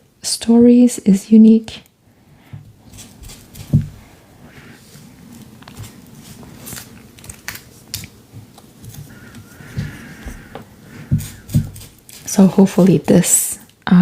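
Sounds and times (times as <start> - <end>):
paper rustling: 4.9 - 13.2
paper crinkling and clicking: 5.4 - 9.5.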